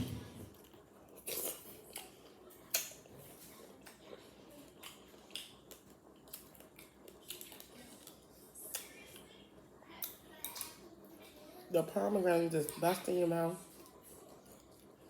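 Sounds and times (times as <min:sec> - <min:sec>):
person chewing: 0:00.2 - 0:04.0, 0:04.7 - 0:09.3.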